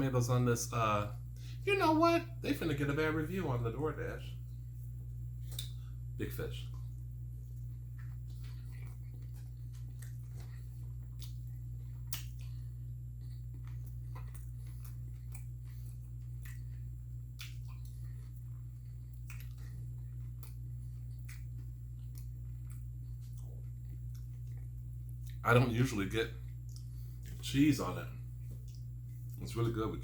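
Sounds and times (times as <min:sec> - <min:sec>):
steady low hum: 0:00.0 - 0:30.0
person chewing food: 0:04.6 - 0:25.6, 0:26.3 - 0:27.4, 0:28.2 - 0:29.4
wet mouth clicks: 0:05.4 - 0:05.8, 0:11.1 - 0:12.7, 0:17.3 - 0:18.0.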